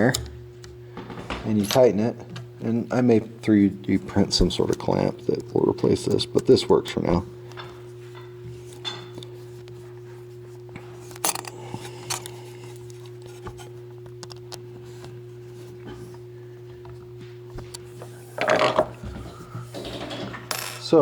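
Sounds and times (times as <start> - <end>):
steady low hum: 0.0 - 21.0
metallic clicks and clinks: 11.2 - 12.2.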